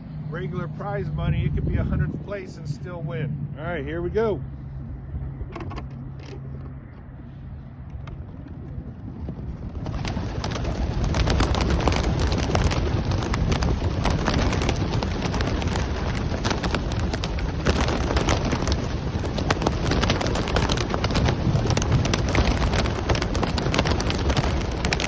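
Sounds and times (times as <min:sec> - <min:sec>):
pigeon wingbeats clattering: 0:08.0 - 0:25.0.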